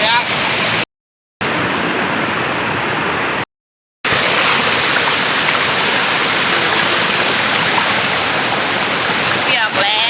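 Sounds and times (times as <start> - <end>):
waterfall pouring over rocks: 4.1 - 10.0.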